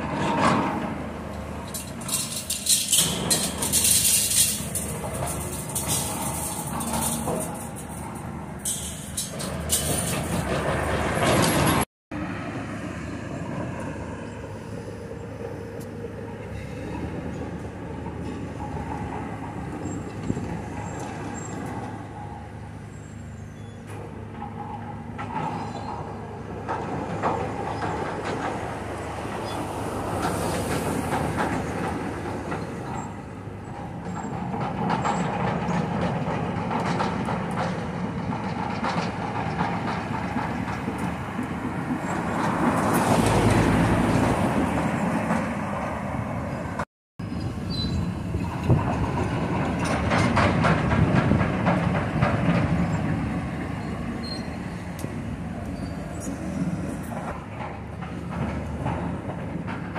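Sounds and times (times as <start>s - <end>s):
knocks and clanks: 0.0s - 11.9s, 23.8s - 45.6s, 48.3s - 53.2s, 57.0s - 59.9s
demolition machinery rumbling: 0.0s - 59.9s.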